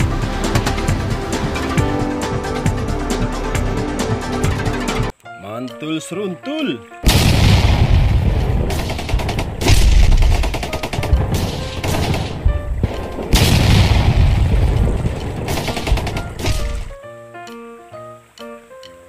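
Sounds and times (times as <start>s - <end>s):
deep booms: 7.1s - 17.0s
machine-gun fire: 7.1s - 17.0s.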